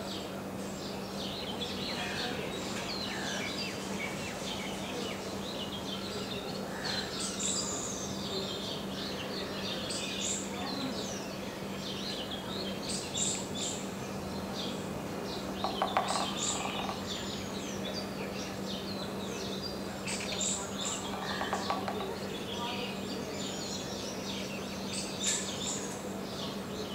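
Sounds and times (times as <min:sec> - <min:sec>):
birds chirping and whistling: 0:15.4 - 0:25.9
woodpecker tapping on trunk: 0:15.6 - 0:17.0, 0:21.0 - 0:22.2.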